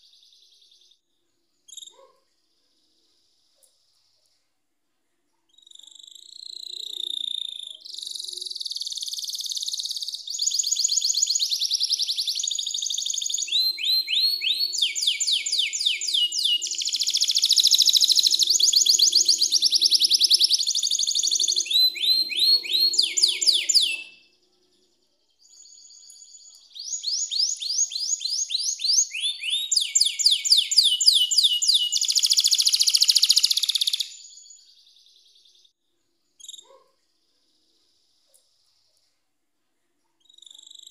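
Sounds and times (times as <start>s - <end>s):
canary singing trills: 1.7s - 2.3s, 5.5s - 35.7s.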